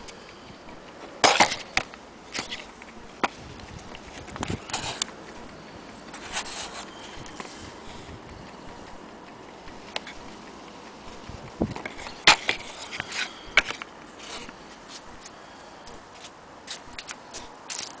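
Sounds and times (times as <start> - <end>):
clock clicks and taps: 8.3 - 15.3.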